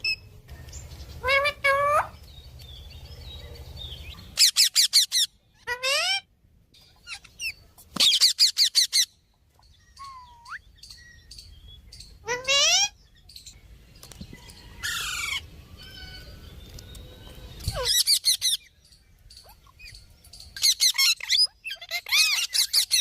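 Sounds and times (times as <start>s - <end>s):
parrot calling: 1.2s - 2.2s, 4.2s - 6.3s, 7.0s - 9.2s, 12.1s - 13.0s, 20.6s - 23.0s
parrot high rapid chirps: 4.4s - 6.3s, 7.0s - 9.1s, 20.6s - 23.0s.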